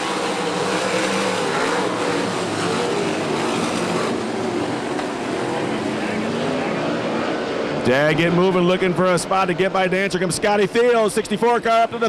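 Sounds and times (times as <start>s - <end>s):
race cars at full throttle: 0.0s - 12.0s.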